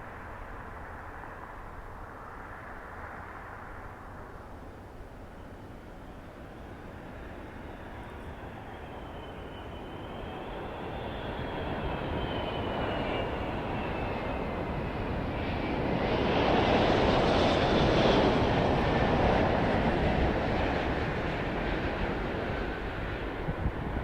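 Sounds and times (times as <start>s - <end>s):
jet engines high fan whine: 0.0s - 24.0s.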